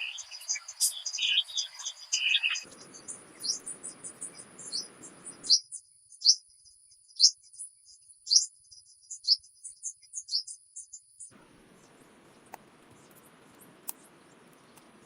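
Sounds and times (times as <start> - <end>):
faint low hiss: 0.0 - 5.6, 11.3 - 15.0
small birds chirping: 0.0 - 15.0.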